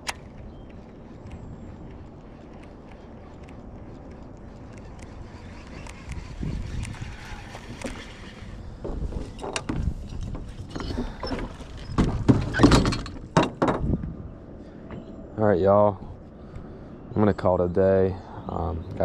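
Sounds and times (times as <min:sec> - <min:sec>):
wind noise: 0:00.0 - 0:14.6
knocks and clatter in boat: 0:08.7 - 0:14.1.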